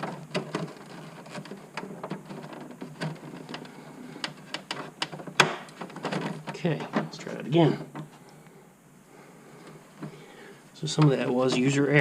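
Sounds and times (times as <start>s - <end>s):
light clicks and knocks of parts: 0.0s - 8.6s.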